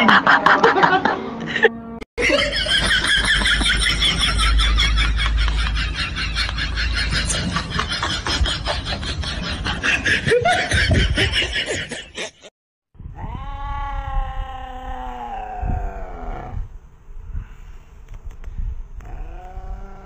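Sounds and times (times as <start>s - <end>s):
cat yowling: 13.2s - 16.4s.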